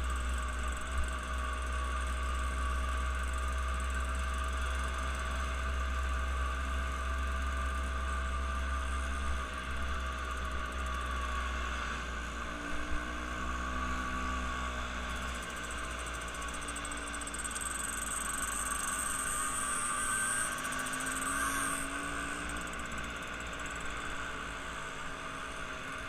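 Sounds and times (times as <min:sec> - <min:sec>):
engine drone: 0:00.0 - 0:26.0.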